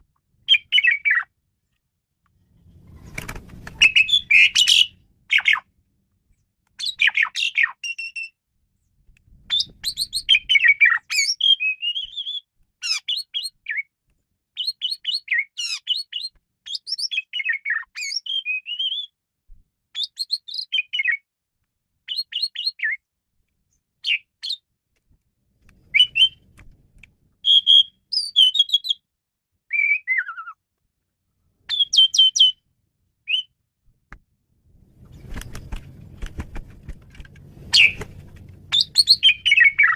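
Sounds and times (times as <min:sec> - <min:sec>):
starling singing: 0:00.5 - 0:01.3, 0:03.8 - 0:05.6, 0:37.7 - 0:38.0, 0:38.7 - 0:39.9.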